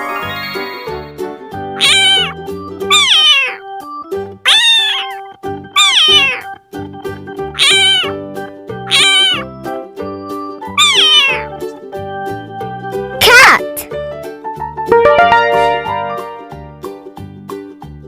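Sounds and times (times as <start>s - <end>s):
light background music: 0.0s - 18.0s
cat meowing: 1.8s - 3.6s, 4.5s - 6.6s, 7.6s - 8.2s, 8.9s - 9.5s, 10.7s - 11.5s.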